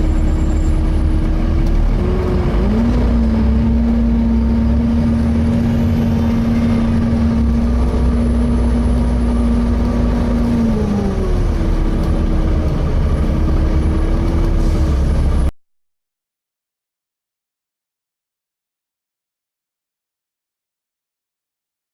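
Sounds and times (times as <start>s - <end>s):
bus engine rumble and whine: 0.0s - 15.5s.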